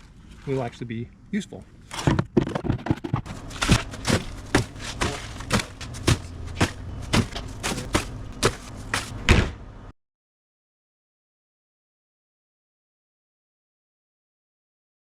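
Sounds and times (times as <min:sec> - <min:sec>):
low background rumble: 0:01.0 - 0:09.9
thuds and knocks: 0:02.0 - 0:09.6.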